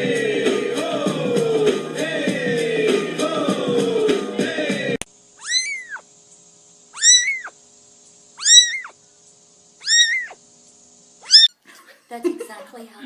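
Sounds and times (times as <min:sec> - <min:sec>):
cat meowing: 0:05.4 - 0:06.0, 0:07.0 - 0:07.6, 0:08.4 - 0:09.0, 0:09.8 - 0:10.4, 0:11.2 - 0:11.5.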